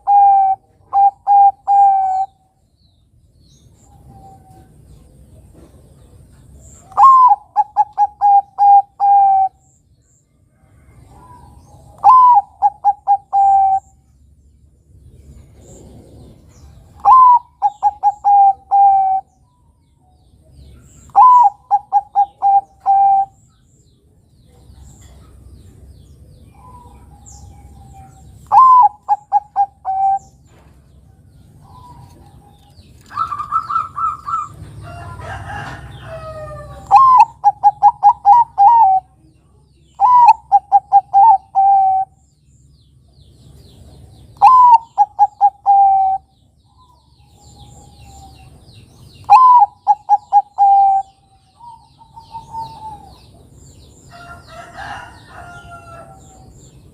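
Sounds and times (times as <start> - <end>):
dove cooing: 0.0 - 2.4, 6.8 - 9.6, 11.0 - 14.0, 15.6 - 19.3, 21.1 - 23.4, 26.5 - 30.4, 31.5 - 39.2, 40.0 - 42.2, 44.4 - 48.5, 49.2 - 53.4.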